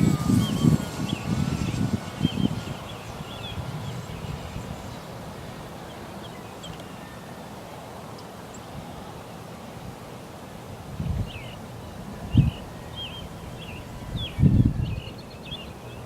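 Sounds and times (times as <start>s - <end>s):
wind buffeting microphone: 0.0s - 6.0s, 10.8s - 16.0s
birds chirping: 0.0s - 7.4s, 11.0s - 16.0s.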